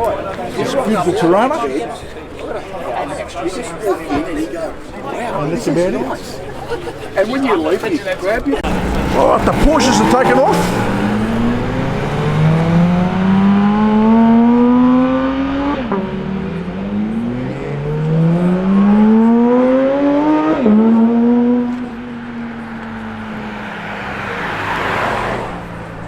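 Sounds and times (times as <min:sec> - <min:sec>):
car engine accelerating through gears: 0:08.6 - 0:26.0.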